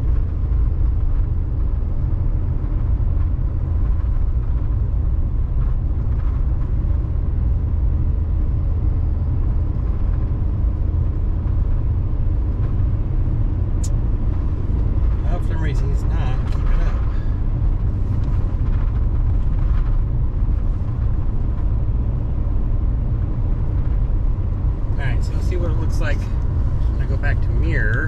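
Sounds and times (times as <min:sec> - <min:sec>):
diesel truck engine rumble: 0:00.0 - 0:28.0
tyres on road: 0:00.0 - 0:28.0.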